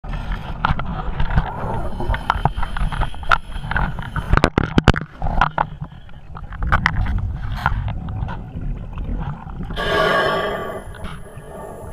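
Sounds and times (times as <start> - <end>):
diver breathing through regulator: 1.6 - 4.4, 9.8 - 11.9.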